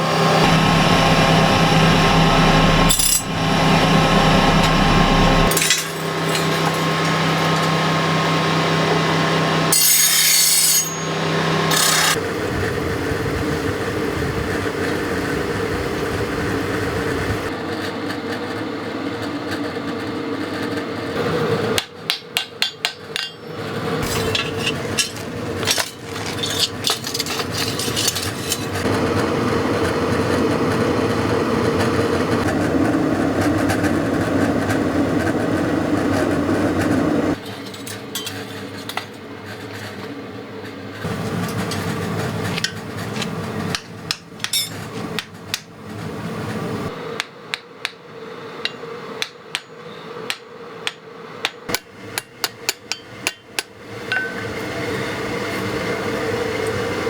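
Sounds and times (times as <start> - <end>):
machine hum: 0.0 - 9.8
steel being filed: 0.4 - 7.2, 9.7 - 12.2, 22.7 - 28.8.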